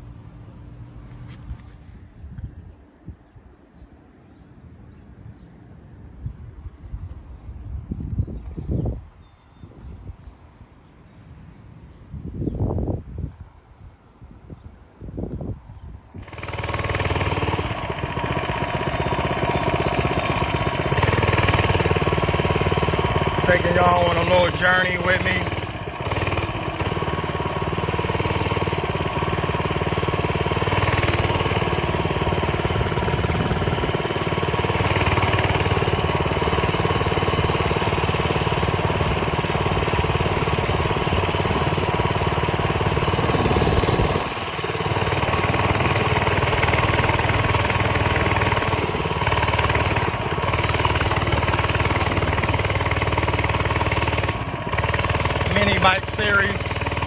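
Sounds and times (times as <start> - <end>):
small mini bike engine running: 16.2 - 57.0.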